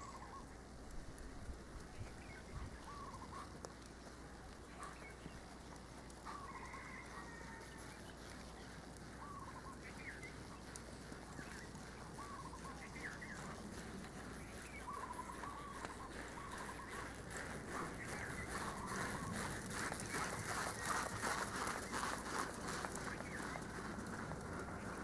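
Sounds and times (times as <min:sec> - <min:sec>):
faint wavering bird calls: 0:00.0 - 0:00.6, 0:01.9 - 0:03.6, 0:06.2 - 0:21.1
steady low hiss: 0:00.0 - 0:06.2.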